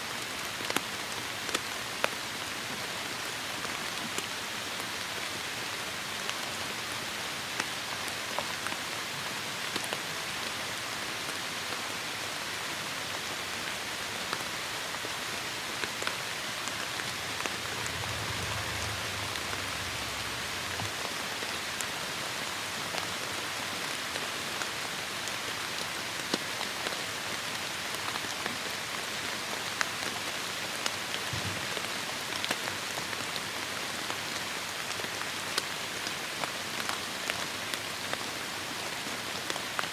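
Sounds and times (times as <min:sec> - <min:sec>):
heavy rain: 0:00.1 - 0:39.9
low rumble: 0:16.1 - 0:21.9.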